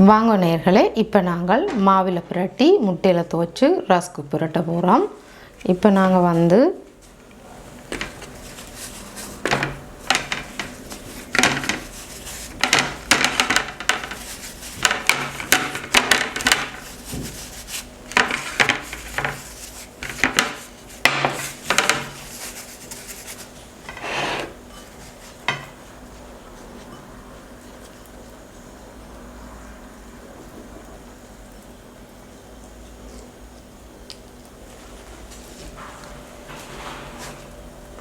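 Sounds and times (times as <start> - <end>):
scraping and rubbing against dish: 8.0 - 25.7.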